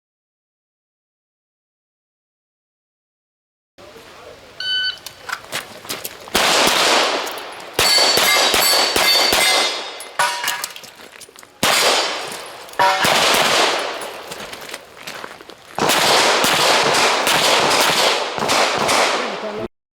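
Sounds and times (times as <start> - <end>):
gunshots with long echo: 6.3 - 10.7, 11.6 - 14.4, 15.8 - 19.6
steel targets ringing: 6.5 - 10.9, 11.6 - 14.4.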